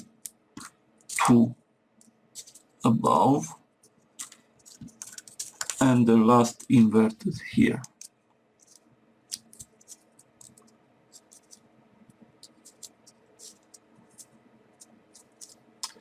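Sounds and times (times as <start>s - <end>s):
paper clicks and crinkles: 2.4s - 2.7s, 4.2s - 6.8s, 7.8s - 11.6s, 12.4s - 16.0s.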